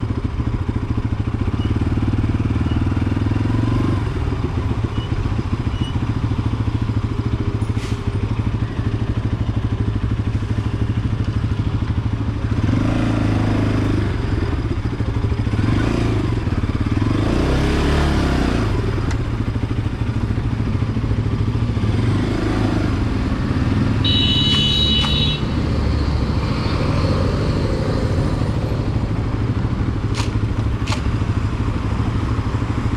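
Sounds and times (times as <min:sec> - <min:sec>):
motorcycle engine rumbling: 0:00.0 - 0:32.9
passing vehicle noise: 0:24.6 - 0:32.9.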